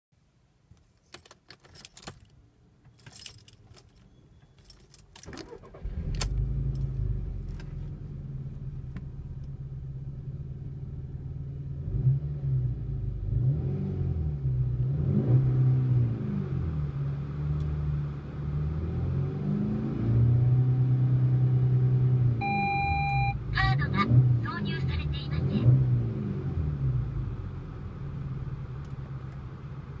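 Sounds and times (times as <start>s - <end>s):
car engine starting and idling: 0.8s - 30.0s
keys jangling: 1.1s - 7.7s
engine revving: 11.7s - 27.5s.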